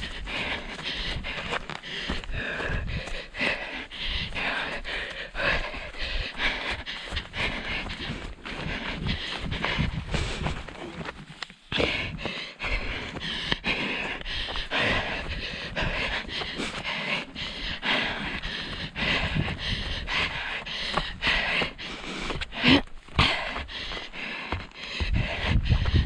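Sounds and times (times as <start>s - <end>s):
wind rumbling on microphone: 0.0s - 11.1s, 17.7s - 21.5s, 25.0s - 26.0s
person panting hard: 0.0s - 26.0s
running footfalls: 0.0s - 26.0s.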